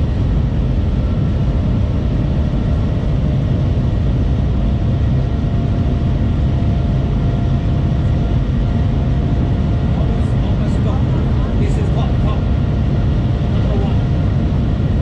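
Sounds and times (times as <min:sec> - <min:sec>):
train cabin rumble and rush: 0:13.2 - 0:14.3.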